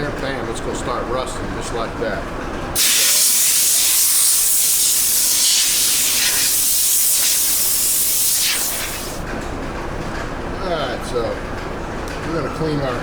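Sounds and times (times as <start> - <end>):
compressed air blow gun hissing: 2.8 - 9.2.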